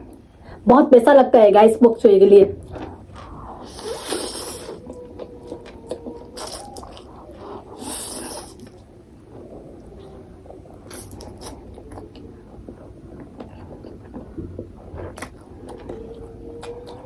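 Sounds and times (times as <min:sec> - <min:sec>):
low steady hum: 0:00.0 - 0:17.0
wet mouth noises: 0:02.6 - 0:08.9, 0:10.8 - 0:16.0
chewing noodles: 0:02.7 - 0:17.0.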